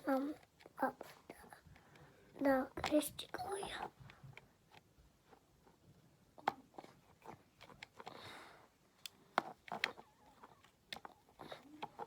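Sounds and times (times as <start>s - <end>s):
screwdriver being handled: 6.7s - 8.2s, 9.0s - 12.0s
plastic toy parts clicking: 9.0s - 12.0s.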